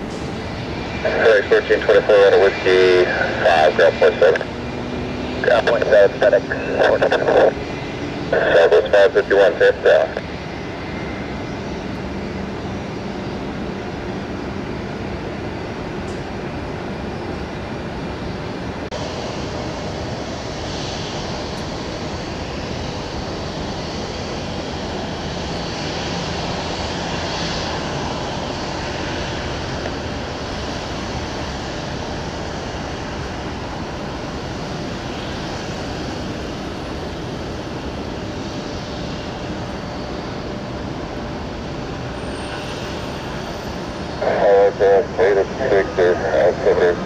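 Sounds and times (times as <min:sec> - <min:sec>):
aircraft engines running: 0:00.0 - 0:47.0
faint high whine: 0:01.0 - 0:04.6, 0:05.4 - 0:11.8, 0:41.4 - 0:47.0.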